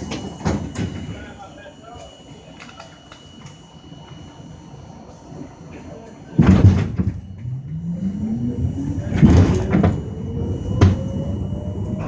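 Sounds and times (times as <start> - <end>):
subway car clatter: 0.0 - 12.0
traction motor whine: 0.0 - 12.0
sharp knocks from train car: 6.4 - 7.3.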